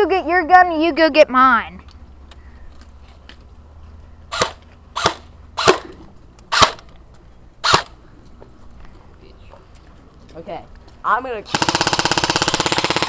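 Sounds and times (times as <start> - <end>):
airsoft gun shots: 4.3 - 6.8, 7.6 - 8.0.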